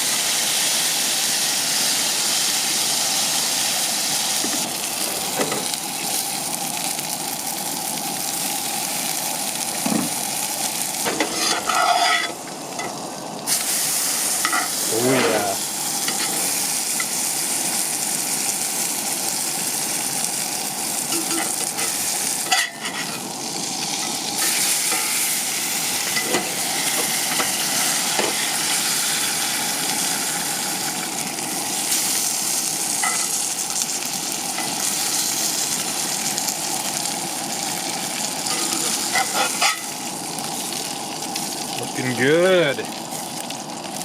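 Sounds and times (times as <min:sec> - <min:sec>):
food sizzling in a pan: 0:00.0 - 0:44.0.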